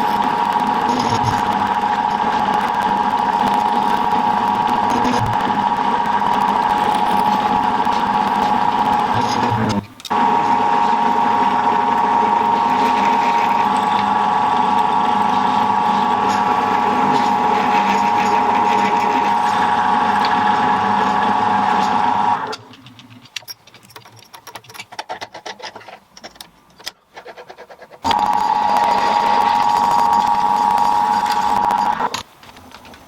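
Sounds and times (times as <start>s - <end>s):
milling machine drilling steel: 0.0s - 22.6s, 28.1s - 32.1s
faint clicks and knocks: 21.8s - 33.0s.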